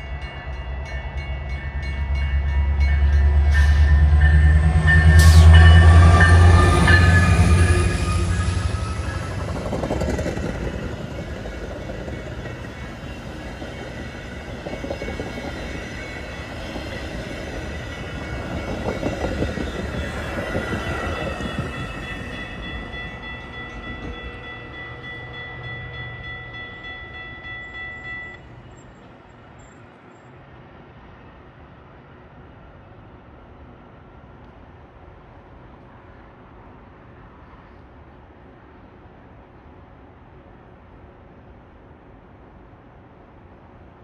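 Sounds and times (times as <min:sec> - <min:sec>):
high tones from train: 0:00.0 - 0:30.5
train rumbling past: 0:00.0 - 0:44.0.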